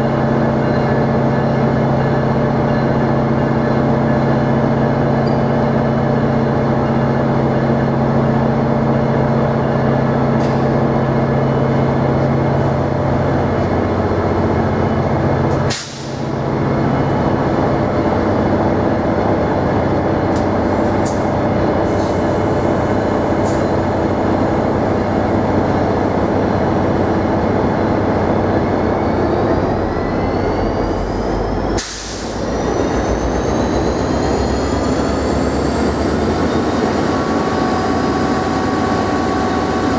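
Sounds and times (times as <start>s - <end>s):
train engine hum: 0.0s - 39.9s
train rolling noise: 0.0s - 39.9s
train whine rising in pitch: 0.0s - 39.9s.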